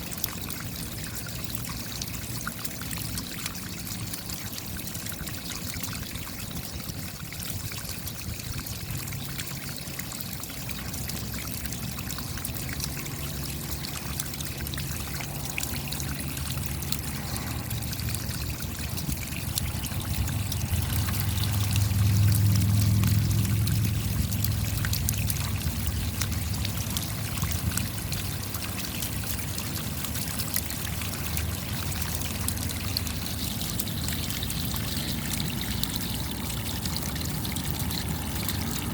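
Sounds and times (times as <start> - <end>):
water trickling: 0.0 - 38.9
raindrops ticking: 8.2 - 38.9
low rumble: 14.6 - 28.4.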